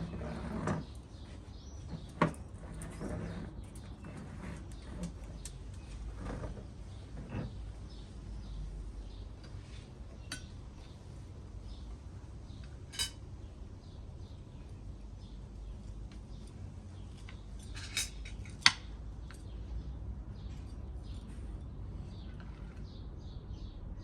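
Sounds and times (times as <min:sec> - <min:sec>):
cutlery clinking against dishes: 0:12.9 - 0:13.2, 0:17.6 - 0:19.5.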